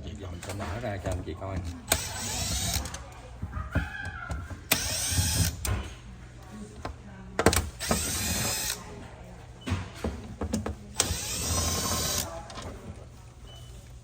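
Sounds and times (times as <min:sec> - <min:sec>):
cordless screwdriver whirring: 0:01.6 - 0:03.1, 0:04.3 - 0:05.9, 0:07.5 - 0:08.8, 0:11.0 - 0:12.4.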